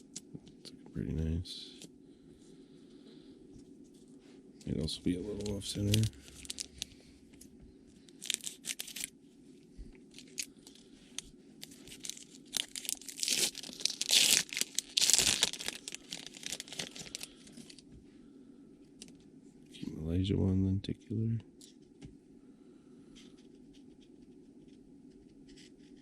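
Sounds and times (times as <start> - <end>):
plastic packaging crinkling and tearing: 5.1 - 7.0, 8.1 - 9.1, 10.1 - 17.8.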